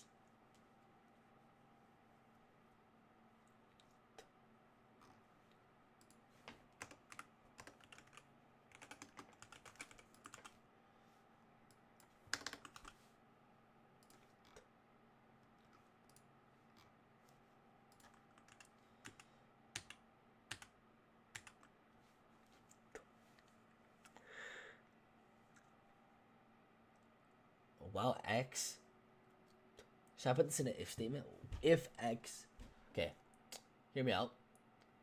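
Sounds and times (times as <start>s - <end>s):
typing on computer keyboard: 6.8s - 10.6s, 12.3s - 13.0s, 17.9s - 20.7s, 21.3s - 21.7s.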